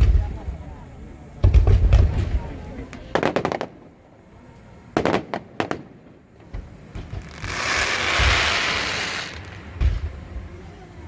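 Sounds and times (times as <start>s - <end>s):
fireworks booms: 0.0s - 4.1s, 4.9s - 10.7s
fireworks bangs: 1.3s - 4.1s, 4.9s - 10.7s
fireworks crackling hiss: 2.1s - 11.0s.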